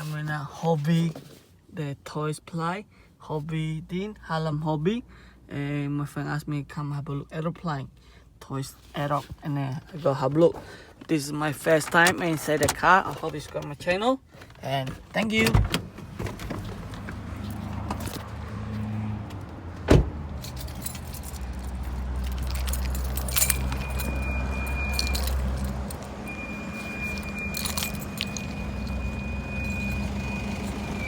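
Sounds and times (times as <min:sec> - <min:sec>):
car engine rumbling: 0:11.4 - 0:31.0
jangling: 0:20.4 - 0:30.1.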